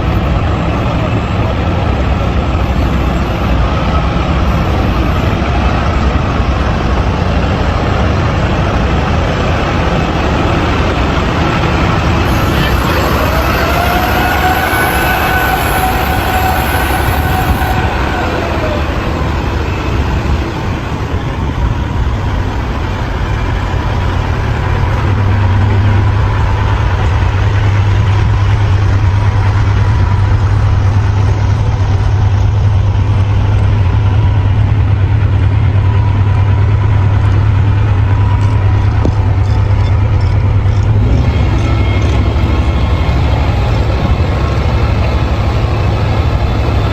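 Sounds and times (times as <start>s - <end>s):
loud steady low hum: 0.0s - 46.9s
steady whine: 0.0s - 46.9s
truck engine running: 0.0s - 46.9s.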